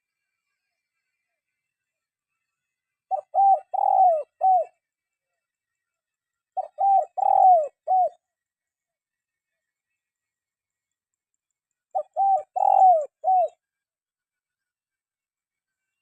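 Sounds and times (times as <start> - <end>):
dove cooing: 3.1 - 4.8, 6.6 - 8.2, 11.9 - 13.6.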